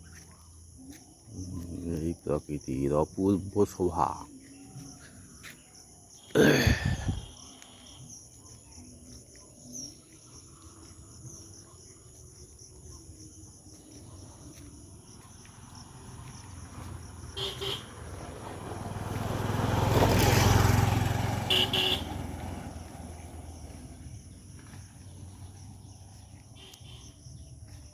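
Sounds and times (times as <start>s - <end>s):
crickets chirring: 0.0s - 27.9s
motor vehicle passing: 15.1s - 26.5s.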